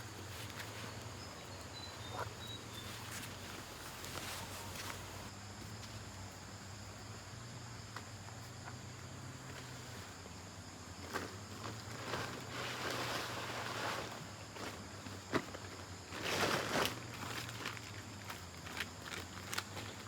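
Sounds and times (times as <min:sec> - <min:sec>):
rustling: 0:00.0 - 0:05.3
insect drone: 0:00.0 - 0:20.0.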